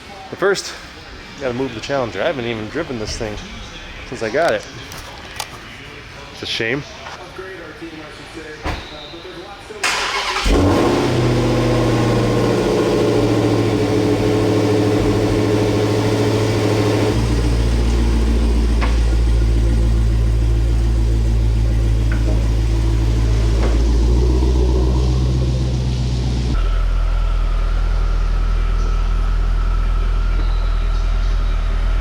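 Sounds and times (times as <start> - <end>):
car engine idling: 9.8 - 32.0.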